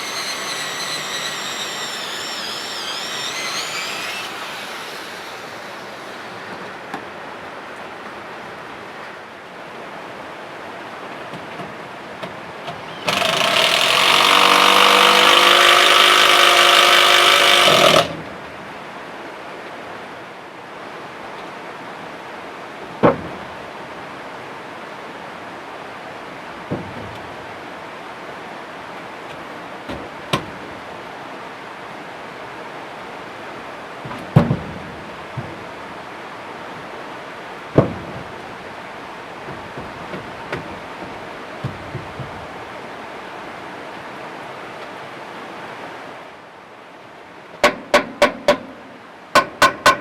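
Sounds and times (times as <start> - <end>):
power tool motor humming: 0.0 - 6.8, 12.8 - 18.2
sharp knocks: 39.4 - 42.6.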